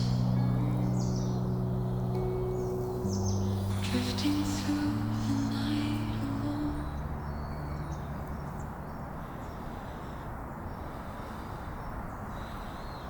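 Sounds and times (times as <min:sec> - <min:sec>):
background music: 0:00.0 - 0:08.9
low outdoor rumble: 0:00.0 - 0:13.0.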